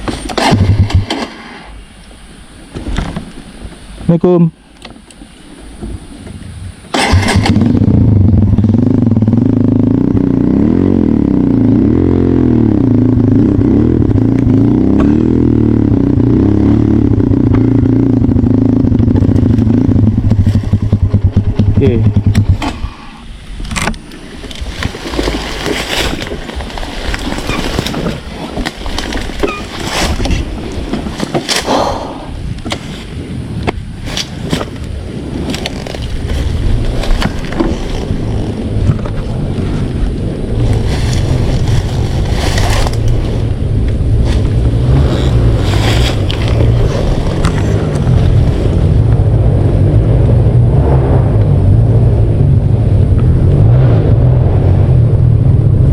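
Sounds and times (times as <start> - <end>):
motorcycle clattering over ground: 6.9 - 8.8
motorcycle engine: 6.9 - 55.9.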